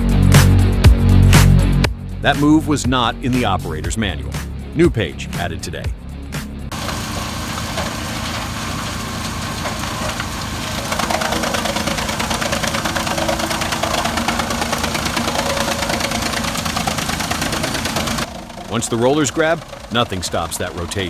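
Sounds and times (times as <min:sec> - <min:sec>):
tractor engine knocking: 0:06.7 - 0:21.0.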